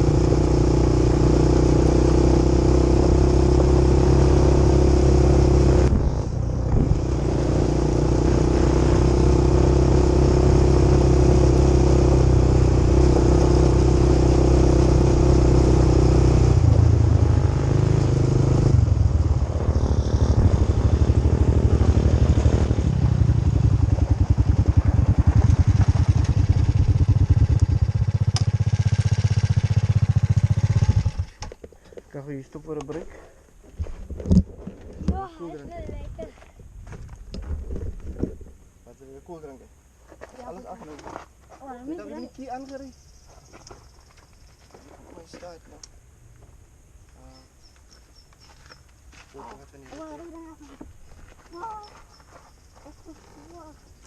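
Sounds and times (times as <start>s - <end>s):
quad bike engine running: 0.0s - 31.5s.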